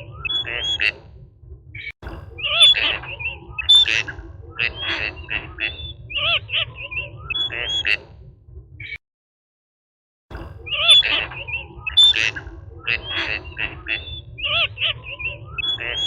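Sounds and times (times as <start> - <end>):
bird calling: 0.0 - 1.0, 1.8 - 8.0, 10.6 - 16.0
steady low rumble: 0.0 - 9.0, 10.3 - 16.0.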